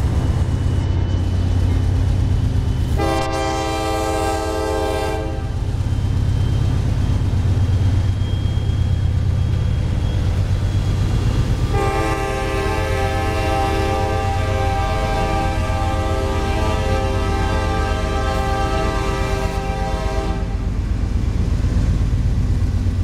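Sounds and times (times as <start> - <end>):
diesel locomotive rumble: 0.0 - 23.0
train air horn blasts: 2.9 - 5.6, 11.7 - 20.7.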